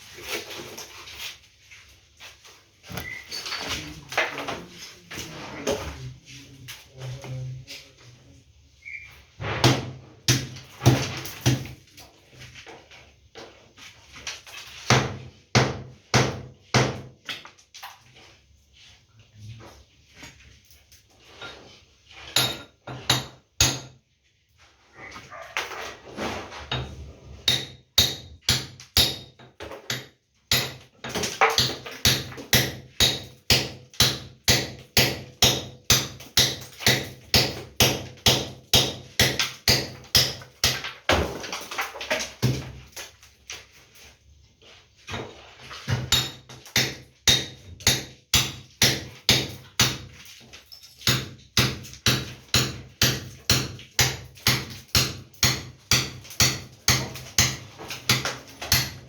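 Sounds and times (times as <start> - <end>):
hammer striking wall: 9.4 - 11.8, 14.9 - 17.4, 22.4 - 24.0, 27.4 - 41.8, 42.4 - 42.8, 45.8 - 50.2, 51.0 - 59.0.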